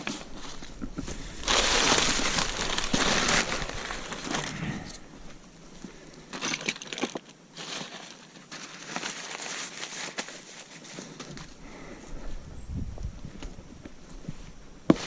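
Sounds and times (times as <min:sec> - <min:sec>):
packaging crinkling and rustling: 0:00.0 - 0:05.4, 0:06.4 - 0:11.6.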